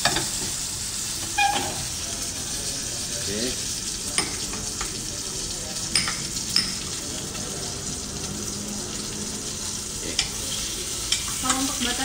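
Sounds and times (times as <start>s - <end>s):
fish sizzling in a frying pan: 0.0s - 12.0s.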